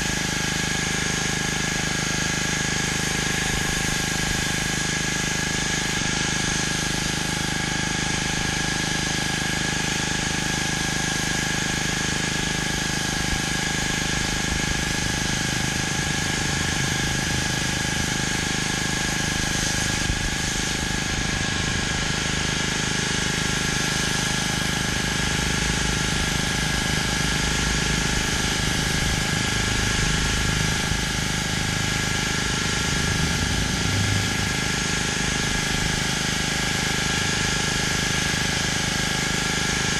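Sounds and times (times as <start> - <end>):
pressure washer engine running: 0.0 - 39.9
water jet hissing on concrete: 0.0 - 39.9.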